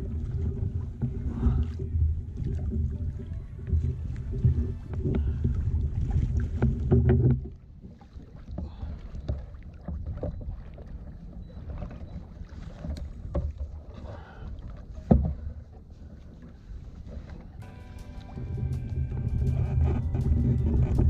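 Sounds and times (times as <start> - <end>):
light water noise: 0.0 - 21.0
steady low rumble: 17.6 - 21.0.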